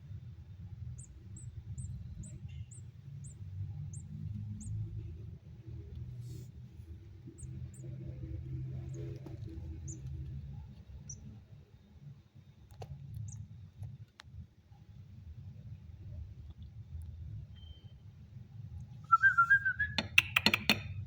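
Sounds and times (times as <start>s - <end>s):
bird high chirps: 1.0s - 4.8s, 19.1s - 20.8s
sharp clicks: 19.9s - 21.0s.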